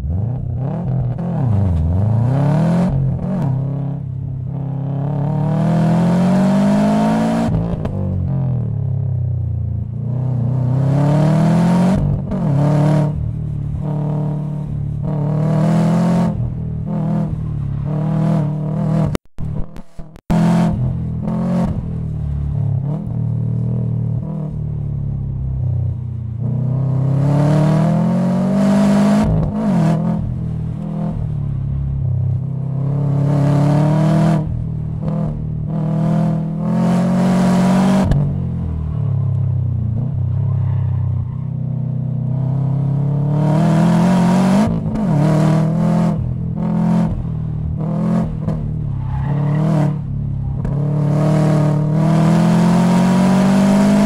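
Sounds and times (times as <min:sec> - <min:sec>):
car engine revving hard: 0:05.0 - 0:07.8, 0:26.6 - 0:30.3, 0:32.8 - 0:38.4, 0:42.3 - 0:48.8, 0:49.4 - 0:54.0.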